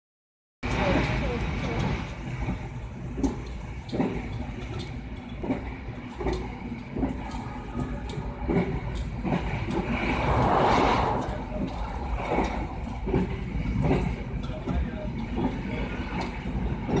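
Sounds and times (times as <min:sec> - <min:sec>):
train wheels rumbling on rails: 0:00.6 - 0:17.0
rush of noise: 0:09.8 - 0:13.0.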